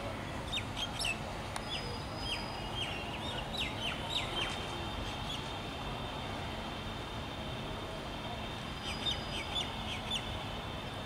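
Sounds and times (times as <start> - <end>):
small birds chirping: 8.8 - 10.4.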